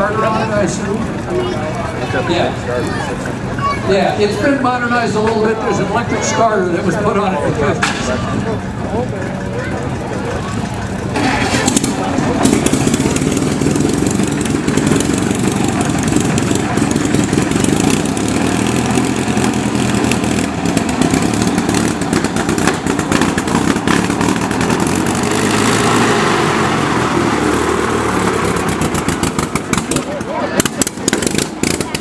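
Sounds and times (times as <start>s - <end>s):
car engine running: 0.0s - 32.0s.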